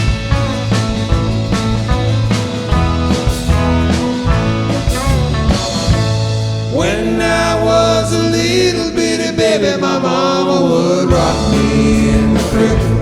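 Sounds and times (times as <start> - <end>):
country rock band playing: 0.0 - 13.0
lead vocal singing: 6.7 - 13.0.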